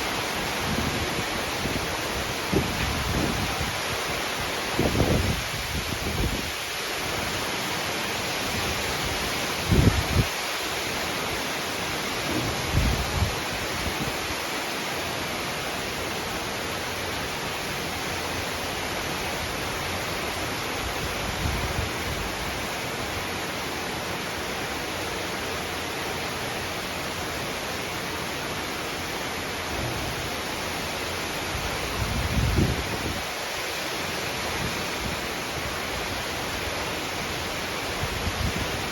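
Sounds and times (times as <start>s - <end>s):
heavy rain hissing: 0.0s - 38.9s.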